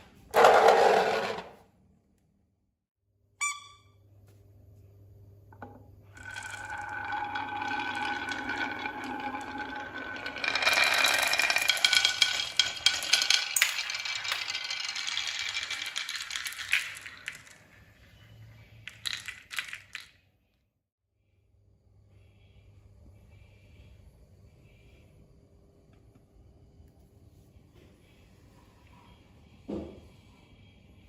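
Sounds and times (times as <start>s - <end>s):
small hard objects rattling: 6.2s - 17.9s, 18.9s - 20.2s.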